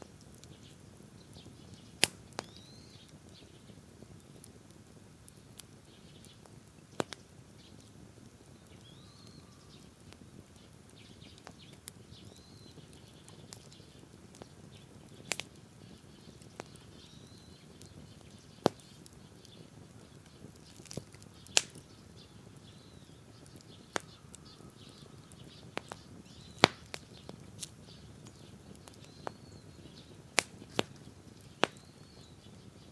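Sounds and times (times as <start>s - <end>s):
campfire pops: 0.0s - 32.9s
low steady fire hiss: 0.0s - 32.9s
faint bird chirps: 0.4s - 3.8s, 5.4s - 32.9s.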